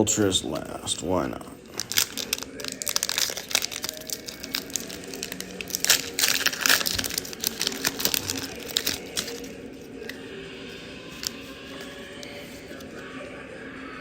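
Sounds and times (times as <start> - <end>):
foil wrapper crinkling and tearing: 1.6 - 10.1.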